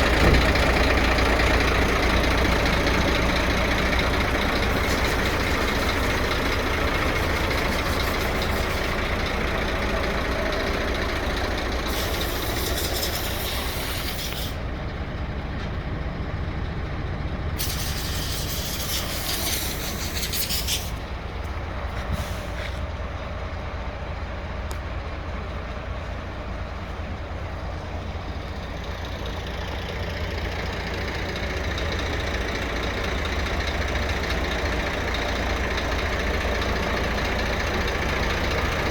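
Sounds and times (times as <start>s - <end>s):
diesel truck engine running: 0.0s - 38.9s
compressed air hissing: 11.9s - 14.6s, 17.6s - 21.0s.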